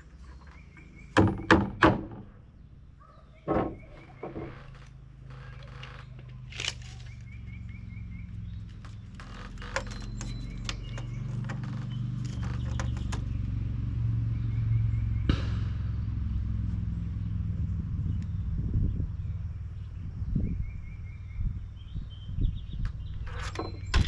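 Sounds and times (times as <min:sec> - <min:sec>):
hammer nailing wood: 0:01.2 - 0:02.2.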